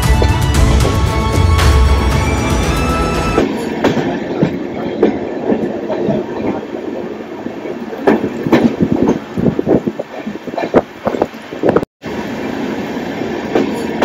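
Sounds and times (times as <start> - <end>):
passenger train on rails: 0.0 - 14.0
wheels knocking and clattering: 8.0 - 11.8.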